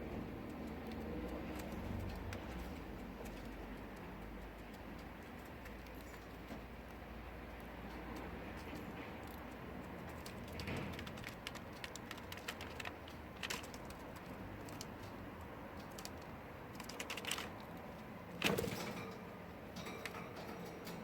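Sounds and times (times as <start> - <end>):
beak clicks nibbling feathers: 9.2 - 18.0.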